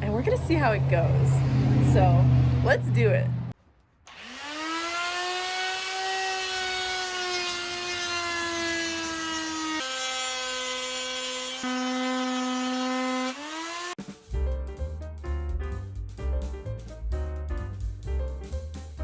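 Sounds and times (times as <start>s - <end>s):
chainsaw cutting wood: 4.1s - 14.0s.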